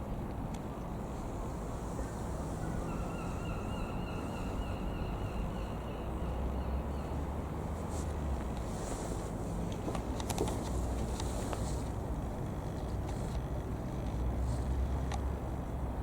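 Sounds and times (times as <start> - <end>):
faint wavering whine: 1.0 - 7.7.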